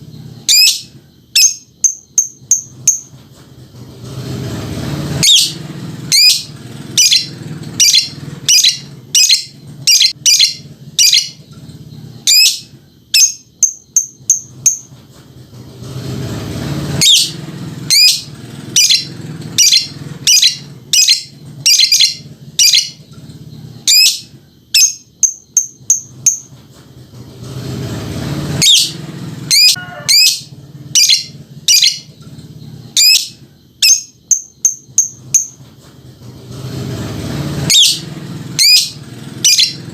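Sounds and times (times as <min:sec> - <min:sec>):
lovebird chirping: 0:00.0 - 0:03.1, 0:05.2 - 0:14.9, 0:17.0 - 0:26.5, 0:28.6 - 0:35.6, 0:37.7 - 0:39.9.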